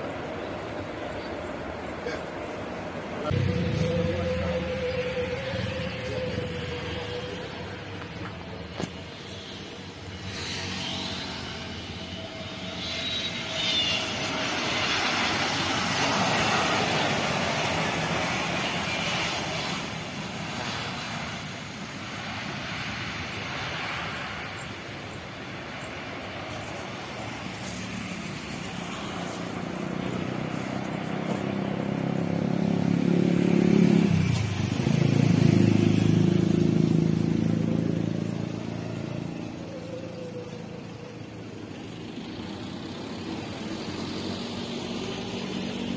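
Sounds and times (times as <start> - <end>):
jet airliner engines roaring: 0.0 - 45.9
low engine hum: 0.0 - 45.9.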